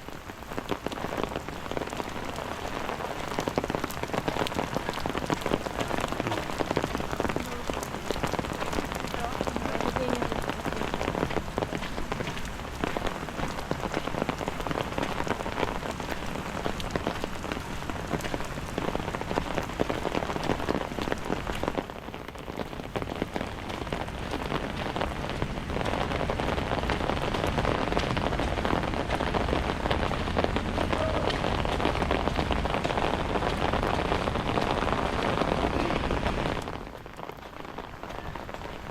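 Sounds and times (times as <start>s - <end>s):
rain pattering on hard surfaces: 0.0s - 38.9s.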